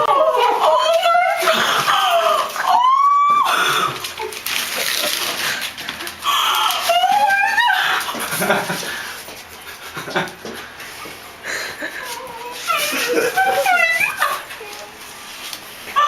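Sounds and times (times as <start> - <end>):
woman squealing excitedly: 0.0 - 3.9, 6.3 - 8.2, 12.7 - 14.5.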